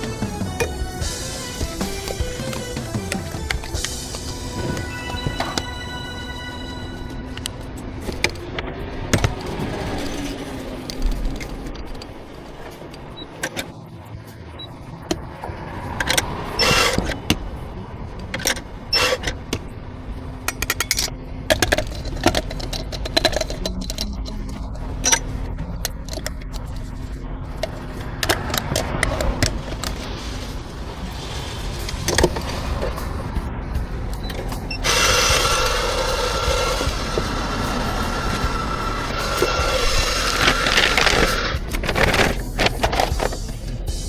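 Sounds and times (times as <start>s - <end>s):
hissing burst: 34.8s - 41.8s.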